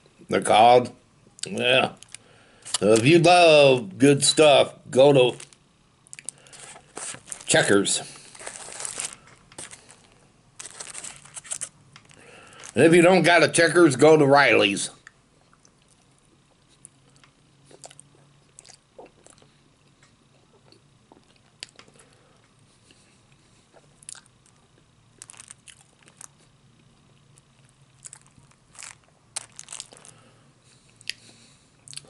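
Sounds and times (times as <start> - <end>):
man chewing with wet smacks: 15.0 - 22.0, 22.9 - 30.1, 30.8 - 32.0.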